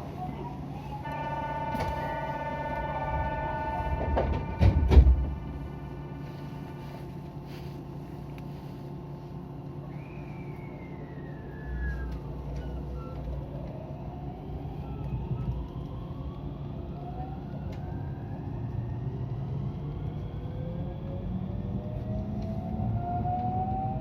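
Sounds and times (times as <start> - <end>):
train running rumble: 0.0 - 24.0
electric train motors whining: 0.4 - 8.5.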